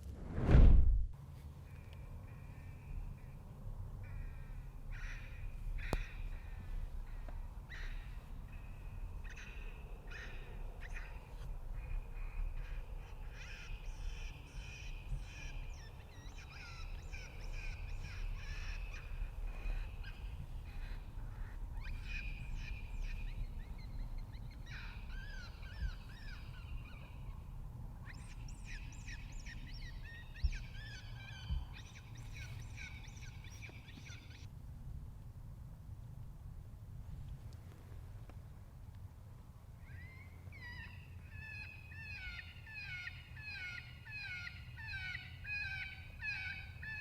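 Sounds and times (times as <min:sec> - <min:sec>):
wind rumble: 0:00.0 - 0:41.3
birds cawing and chirping: 0:01.6 - 0:34.5, 0:39.8 - 0:47.0.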